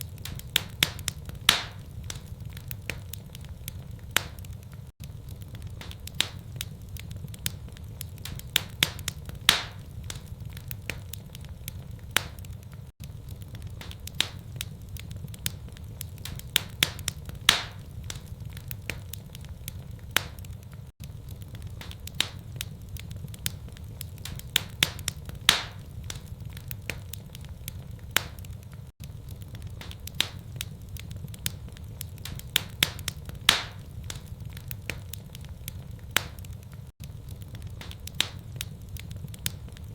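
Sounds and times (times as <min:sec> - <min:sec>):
fire crackling and popping: 0:00.0 - 0:39.9
low fire rumble: 0:00.0 - 0:39.9.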